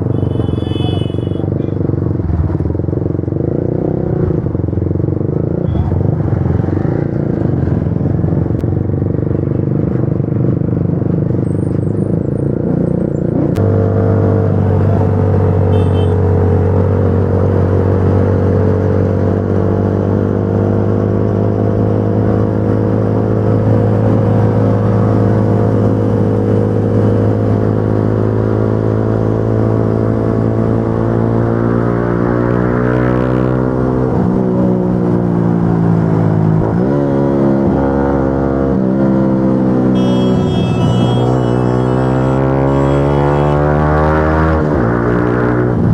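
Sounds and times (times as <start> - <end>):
motorcycle engine running: 39.7 - 43.6.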